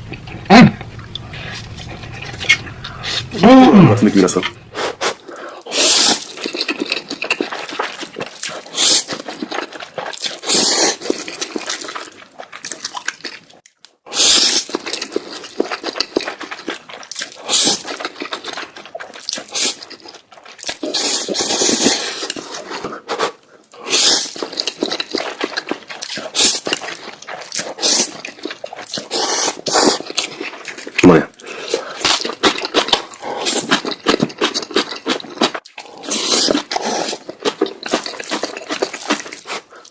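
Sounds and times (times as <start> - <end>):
person slurping noodles: 4.7 - 12.1, 14.1 - 15.9, 17.2 - 39.9.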